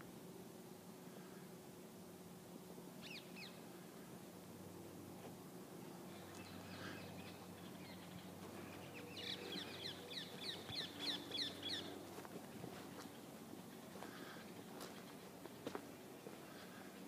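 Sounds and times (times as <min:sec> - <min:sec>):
faint steady hum: 0:00.0 - 0:17.0
bird calling with high notes: 0:03.0 - 0:03.6.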